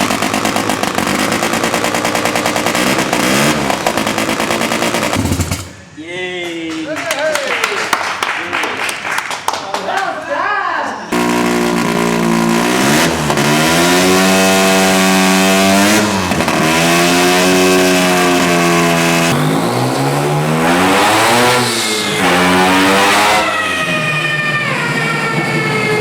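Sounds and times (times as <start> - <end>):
rotary engine revving: 0.0 - 5.8, 11.1 - 26.0.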